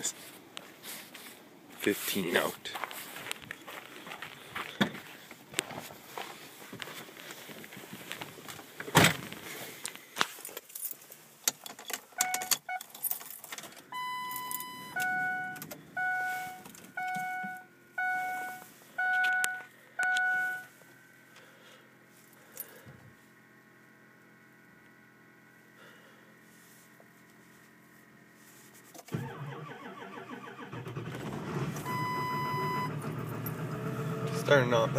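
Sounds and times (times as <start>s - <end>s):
faint steady hum: 0.0s - 33.5s
keys jangling: 10.5s - 14.9s
car warning chimes: 12.1s - 13.2s, 13.8s - 20.8s, 31.8s - 33.6s.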